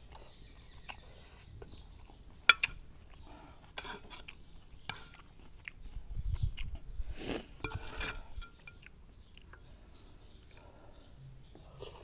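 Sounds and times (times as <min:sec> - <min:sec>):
person chewing noodles: 0:00.0 - 0:09.7.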